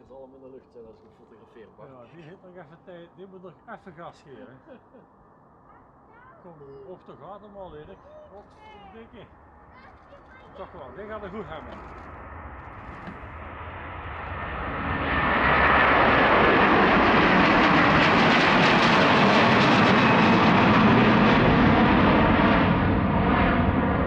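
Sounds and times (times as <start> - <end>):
jet airliner engines at takeoff: 9.0 - 24.0.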